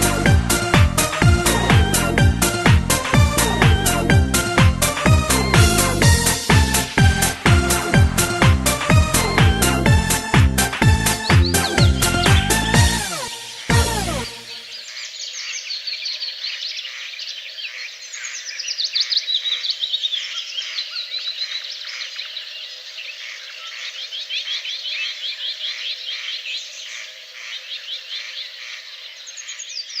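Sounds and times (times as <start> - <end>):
chorus of high animal chirps: 11.1 - 15.6.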